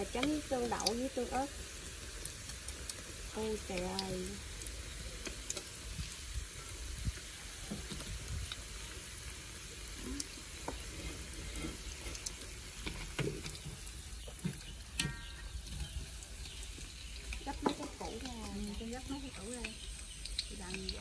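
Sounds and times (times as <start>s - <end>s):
tofu sizzling in hot oil: 0.0s - 21.0s.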